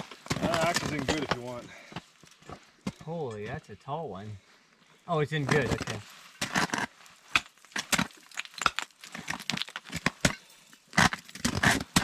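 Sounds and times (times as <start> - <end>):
scraping on ice: 0.0 - 1.6, 5.4 - 12.0
ice axe crunching into ice: 0.0 - 1.7, 5.4 - 12.0.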